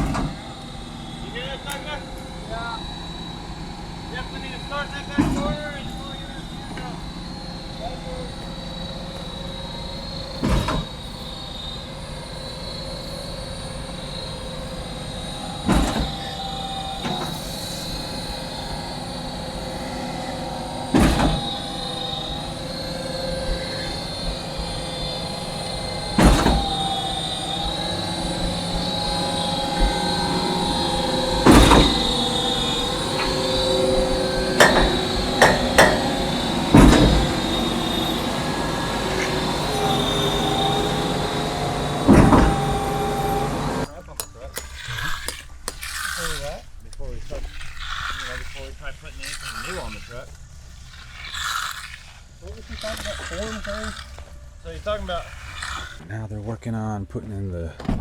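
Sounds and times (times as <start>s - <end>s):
heavy machine clunks: 0.0s - 7.7s, 8.3s - 11.4s, 14.4s - 43.9s
machinery high whine: 0.0s - 44.9s.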